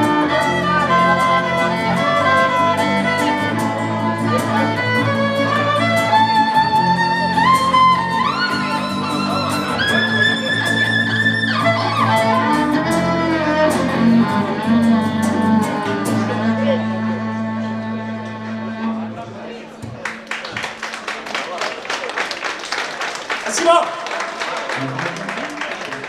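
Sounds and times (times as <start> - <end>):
guitar chords: 0.0 - 19.4
violin melody: 0.0 - 19.7.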